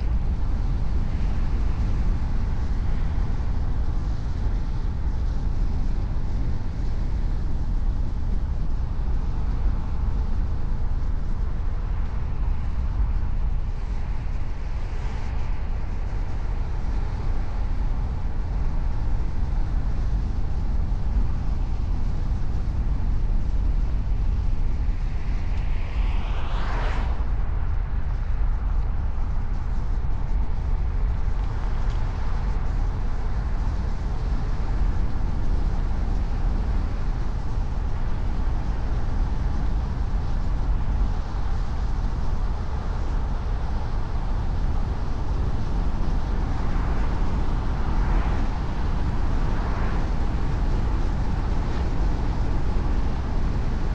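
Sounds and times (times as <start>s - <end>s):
vehicle passing by: 25.2s - 28.0s.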